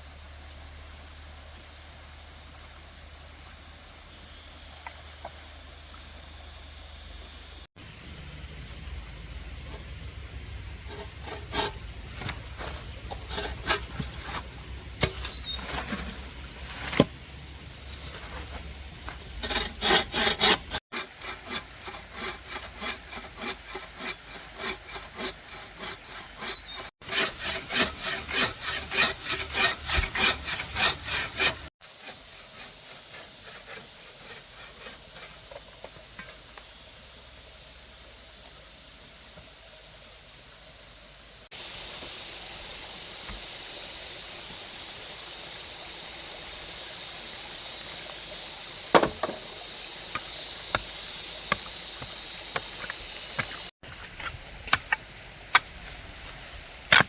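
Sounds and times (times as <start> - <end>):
hand saw cutting wood: 10.9 - 17.1, 17.9 - 35.7, 48.9 - 49.5, 50.1 - 55.7
hiss with thin high tone: 36.6 - 53.7.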